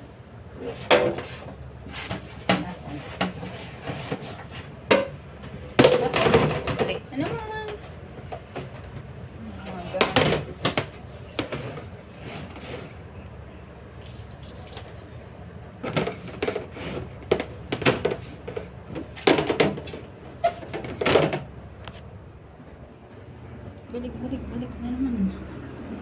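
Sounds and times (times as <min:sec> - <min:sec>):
fridge drawers and containers clattering: 0:00.5 - 0:13.0, 0:15.8 - 0:21.5.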